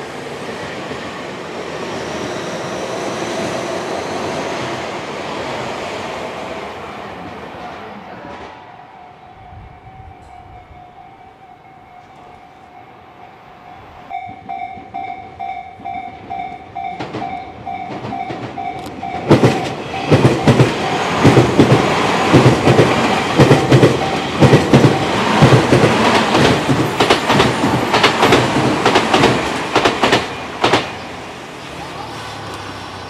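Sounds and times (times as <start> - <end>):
electric train passing: 0.0 - 33.0
level crossing warning bell: 8.6 - 21.6, 23.5 - 25.6.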